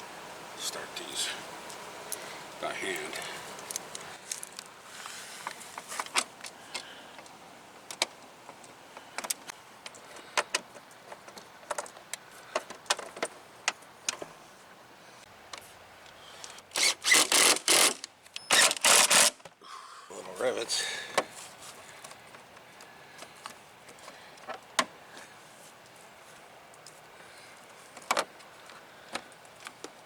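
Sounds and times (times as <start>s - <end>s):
loud short rasping bursts: 16.7s - 19.4s.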